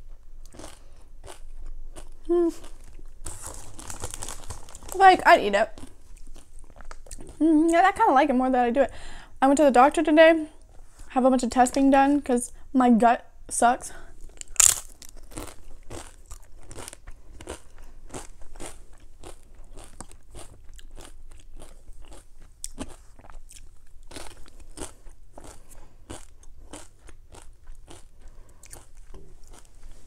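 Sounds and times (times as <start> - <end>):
crunching potato chips: 0.4 - 7.4, 14.3 - 30.0.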